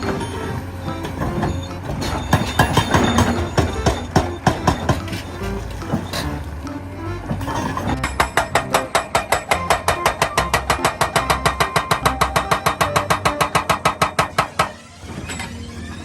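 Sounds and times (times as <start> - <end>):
hydraulic hammer pounding: 0.0 - 16.0.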